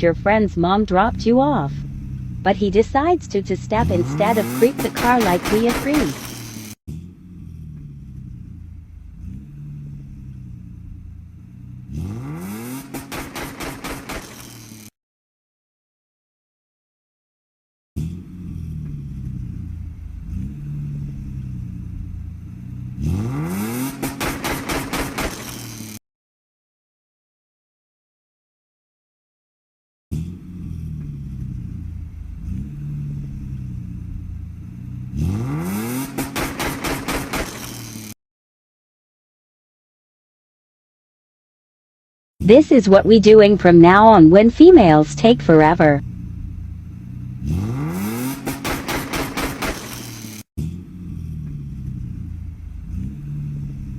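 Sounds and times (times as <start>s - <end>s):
car engine idling and revving: 0.0s - 14.9s, 18.0s - 26.0s, 30.1s - 38.2s, 42.5s - 53.9s
exhaust pops and crackles: 3.7s - 7.0s, 10.6s - 14.9s, 23.3s - 26.0s, 35.4s - 38.1s, 46.0s - 50.8s.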